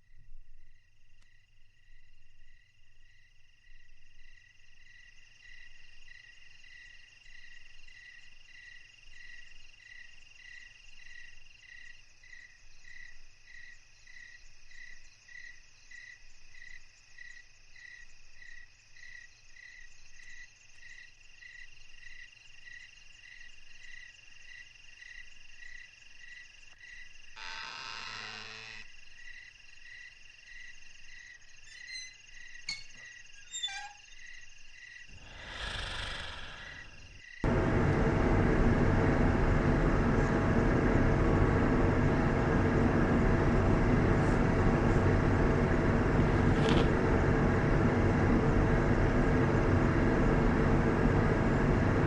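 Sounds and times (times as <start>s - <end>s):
regular chirp: 31.6s - 34.4s.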